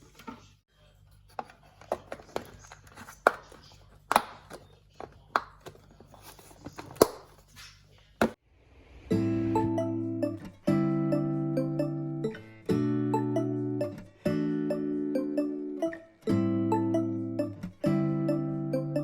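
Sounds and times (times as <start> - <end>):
instrumental music: 9.1 - 19.0.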